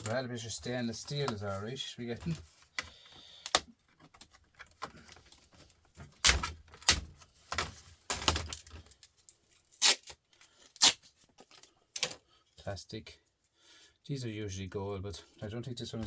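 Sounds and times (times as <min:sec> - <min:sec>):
plastic and metal cracking: 0:00.0 - 0:12.2.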